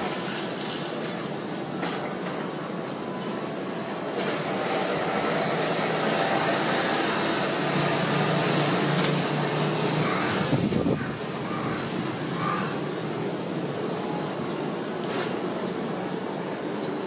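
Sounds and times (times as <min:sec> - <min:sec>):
jet engines roaring: 0:03.8 - 0:17.0
gusty wind on microphone: 0:10.0 - 0:12.5.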